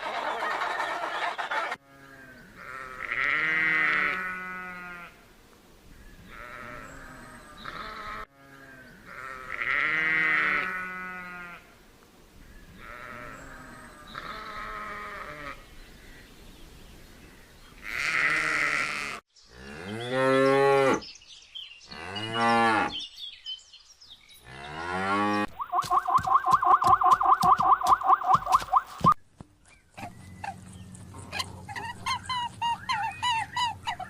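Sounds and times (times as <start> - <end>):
rapid pulsing animal call: 25.5 - 29.2.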